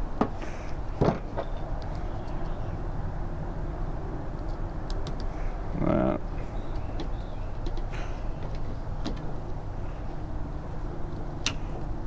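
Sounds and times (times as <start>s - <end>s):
small clicks and taps of tools: 4.4s - 5.3s, 7.0s - 9.3s.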